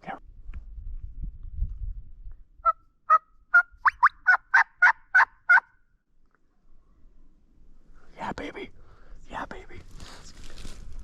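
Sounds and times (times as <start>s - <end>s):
turkey yelping: 2.6s - 5.7s.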